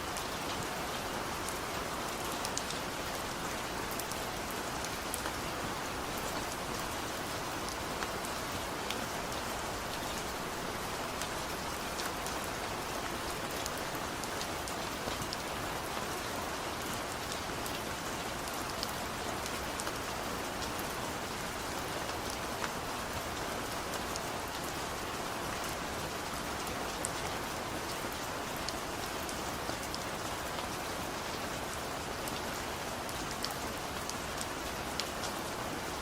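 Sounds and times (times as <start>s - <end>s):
steady rain hiss: 0.0s - 36.0s
raindrops ticking on a surface: 0.1s - 36.0s.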